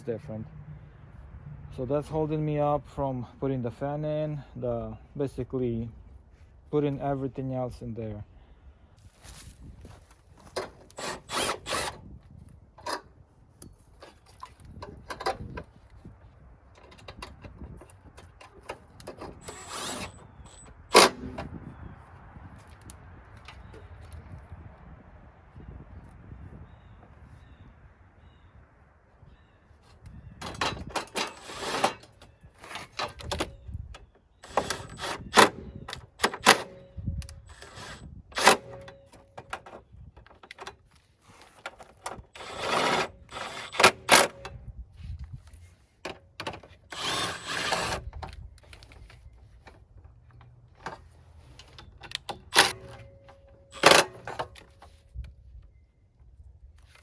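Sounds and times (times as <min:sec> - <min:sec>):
noisy tool bursts: 0:10.9 - 0:12.0, 0:19.3 - 0:21.3, 0:31.1 - 0:32.9, 0:34.4 - 0:35.6, 0:37.4 - 0:38.8, 0:42.3 - 0:44.5, 0:46.9 - 0:48.0.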